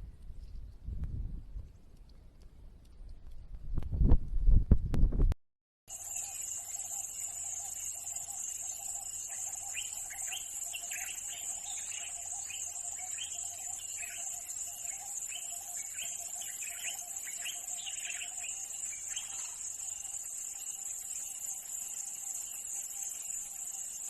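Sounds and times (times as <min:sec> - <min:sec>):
bird chirping: 0:05.9 - 0:24.0
insects trilling: 0:05.9 - 0:24.0.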